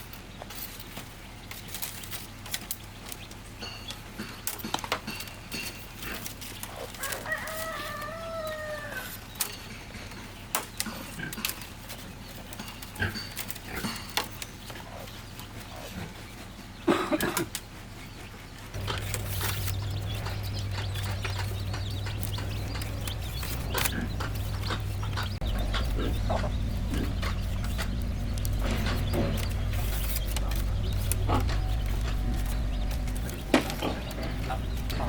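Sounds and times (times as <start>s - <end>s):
rooster crowing: 7.0s - 9.2s.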